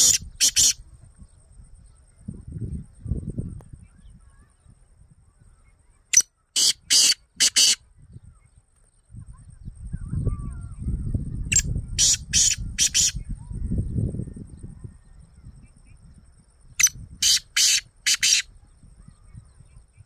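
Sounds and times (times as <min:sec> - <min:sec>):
caged bird harsh rasping calls: 0:00.0 - 0:00.8, 0:06.1 - 0:07.8, 0:11.5 - 0:13.2, 0:16.8 - 0:18.5.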